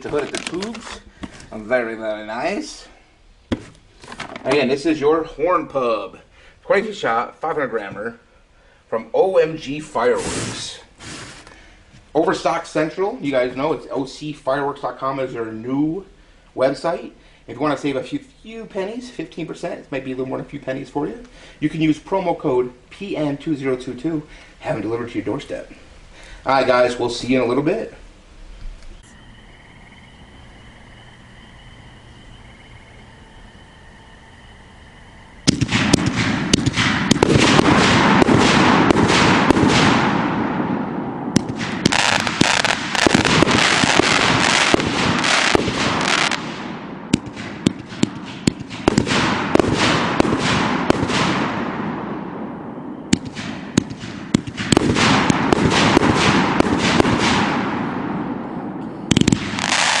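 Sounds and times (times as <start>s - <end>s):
fireworks bangs and crackling: 0.0s - 1.7s, 35.4s - 58.5s, 59.1s - 60.0s
rapid strobe popping: 35.5s - 40.2s, 41.4s - 51.6s, 59.1s - 60.0s.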